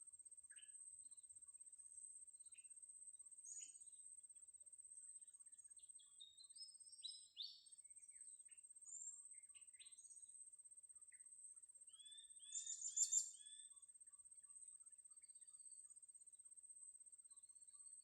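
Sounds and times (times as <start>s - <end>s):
small birds chirping: 0.4s - 1.3s, 2.3s - 4.1s, 5.2s - 10.4s, 11.0s - 13.9s, 14.7s - 16.0s.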